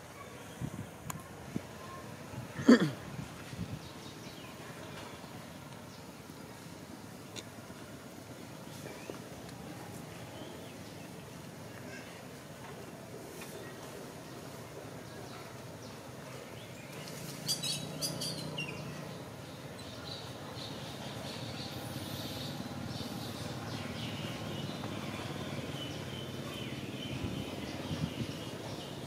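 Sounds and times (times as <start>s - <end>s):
low background noise: 0.0s - 29.0s
birds chirping: 13.6s - 29.0s.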